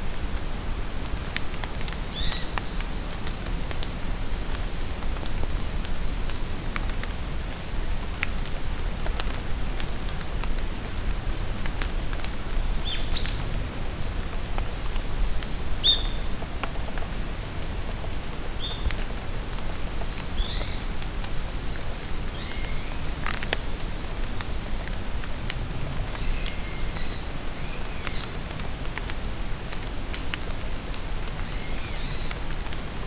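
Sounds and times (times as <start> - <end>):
rain falling in forest: 0.0 - 33.0
songbirds chirping and whistling: 14.7 - 16.3.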